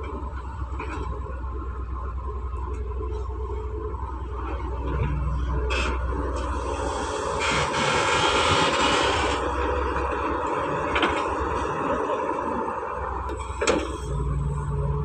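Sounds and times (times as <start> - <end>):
excavator engine rushing: 0.0 - 15.0.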